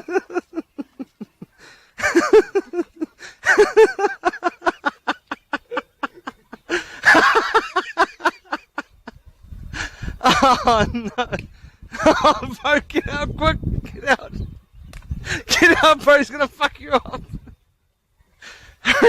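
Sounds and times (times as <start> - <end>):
person laughing hard: 0.0 - 9.2, 9.8 - 13.2.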